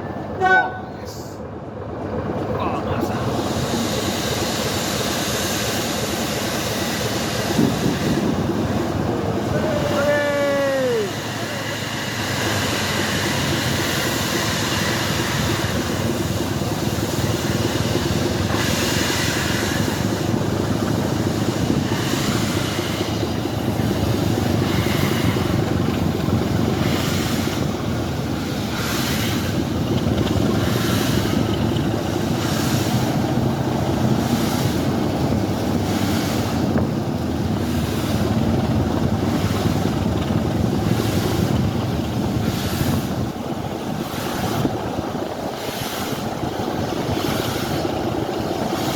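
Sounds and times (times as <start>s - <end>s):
train wheels rumbling on rails: 0.0s - 48.9s
rail joint clicks: 10.6s - 48.9s.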